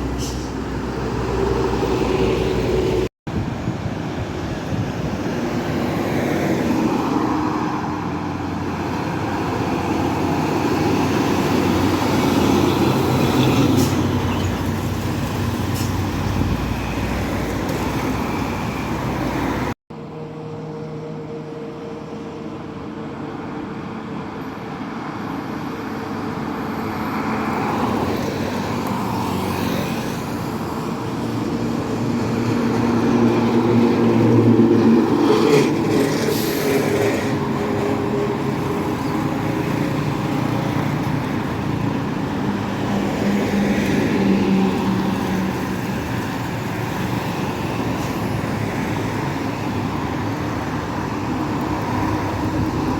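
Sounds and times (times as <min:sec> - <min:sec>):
heavy road traffic: 0:00.0 - 0:52.9.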